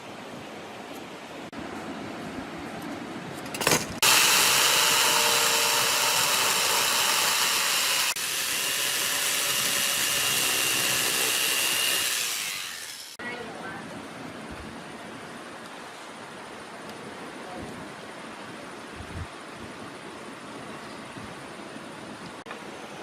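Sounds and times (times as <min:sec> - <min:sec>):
power sander whining: 0:04.0 - 0:13.2.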